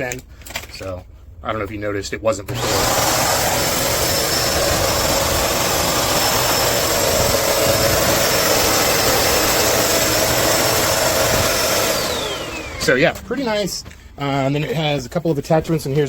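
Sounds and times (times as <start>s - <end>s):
upright vacuum running: 2.5s - 13.9s.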